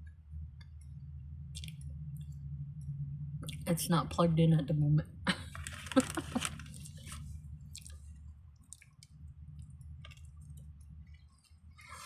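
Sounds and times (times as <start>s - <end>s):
low hum: 0.0s - 12.0s
person chewing food: 6.6s - 12.0s.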